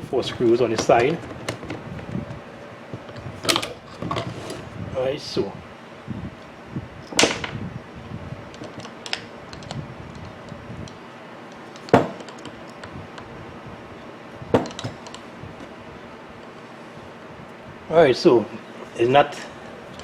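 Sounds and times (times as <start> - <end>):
metal parts clicking and knocking: 3.0 - 4.6, 8.5 - 13.3.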